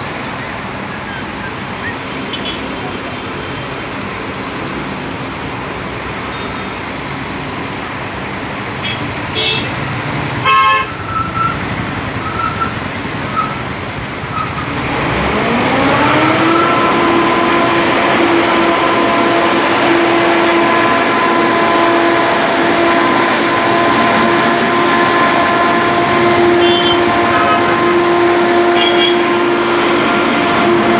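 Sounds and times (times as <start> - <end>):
rumbling mechanical background: 10.4 - 30.9.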